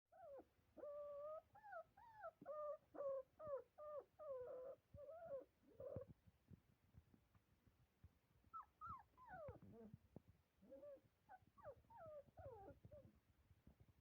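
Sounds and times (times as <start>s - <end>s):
puppies whimpering: 0.2s - 6.0s, 10.7s - 13.1s.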